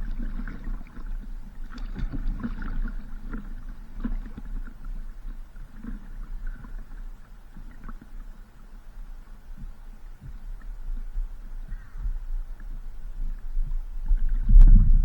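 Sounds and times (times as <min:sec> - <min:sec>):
water splashing and lapping: 0:00.0 - 0:08.4
paddle strokes: 0:00.0 - 0:15.0
steady low hum: 0:00.0 - 0:15.0.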